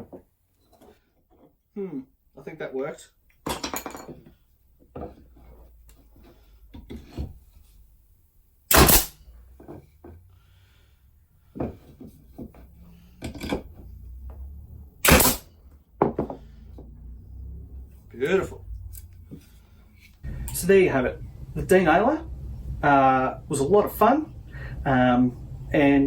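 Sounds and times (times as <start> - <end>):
pneumatic denailer blasts: 8.7 - 9.2, 15.0 - 15.5
knocks and clatter of wood: 11.5 - 14.5, 16.0 - 17.0.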